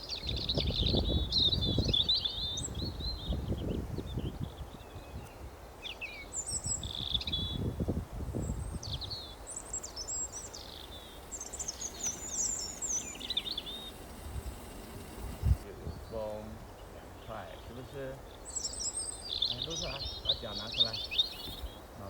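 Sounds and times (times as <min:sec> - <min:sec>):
wind rumbling on microphone: 0:00.0 - 0:05.7, 0:06.4 - 0:18.2
songbirds chirping and trilling: 0:00.0 - 0:22.0.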